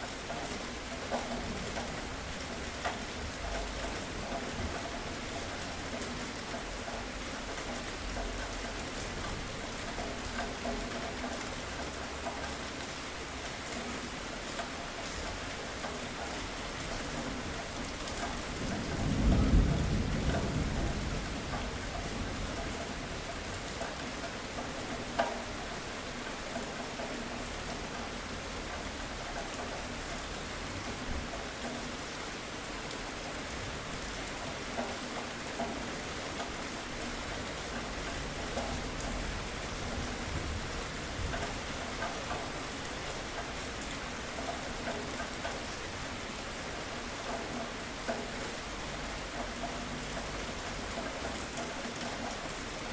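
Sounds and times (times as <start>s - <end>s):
steady rain: 0.0s - 52.9s
low thunder rumble: 18.5s - 23.2s.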